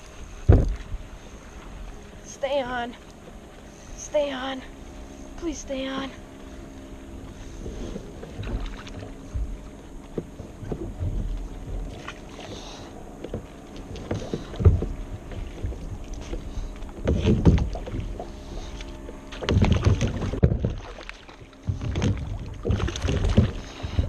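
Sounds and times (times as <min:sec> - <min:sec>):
water sloshing: 0:00.0 - 0:24.0
knocks against a boat: 0:00.4 - 0:01.0, 0:07.6 - 0:12.6, 0:13.2 - 0:24.0.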